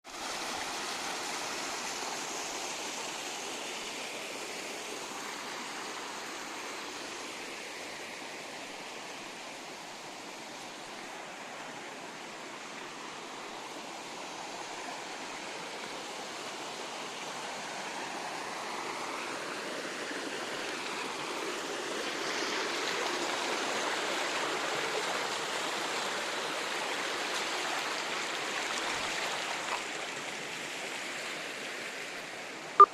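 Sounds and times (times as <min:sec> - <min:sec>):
rushing water: 0:00.0 - 0:32.9.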